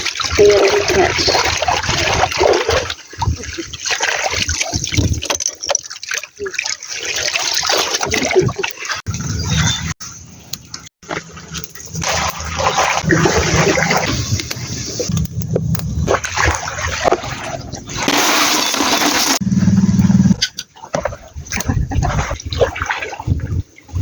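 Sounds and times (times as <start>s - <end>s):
water splashing and rushing: 0.0s - 9.5s, 11.0s - 19.4s, 20.7s - 24.0s
low rumble: 19.4s - 20.4s.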